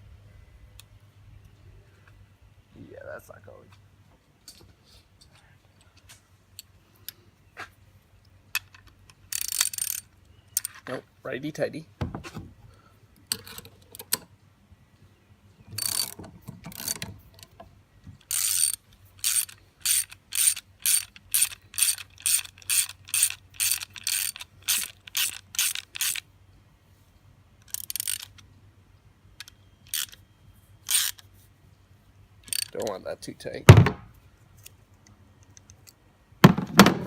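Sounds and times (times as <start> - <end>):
ratchet wrench clicking: 9.3 - 10.8, 18.2 - 26.2, 27.6 - 28.4, 29.4 - 30.2, 30.8 - 31.2, 32.4 - 32.9.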